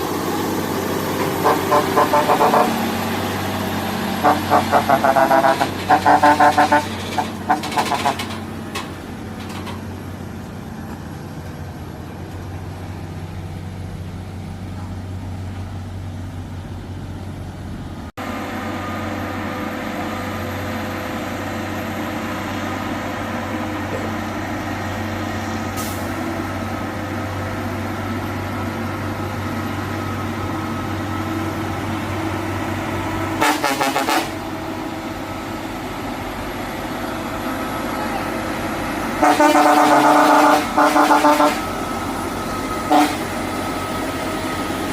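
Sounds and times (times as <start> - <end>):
truck engine running under load: 0.0 - 44.9
truck horn blast: 1.1 - 8.5, 33.4 - 34.6, 39.1 - 41.9, 42.8 - 43.8.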